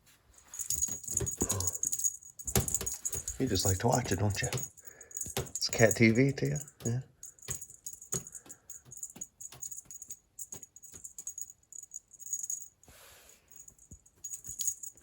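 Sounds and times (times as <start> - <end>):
soft rustle: 0.0 - 6.0
high jingling rattle: 0.4 - 15.0.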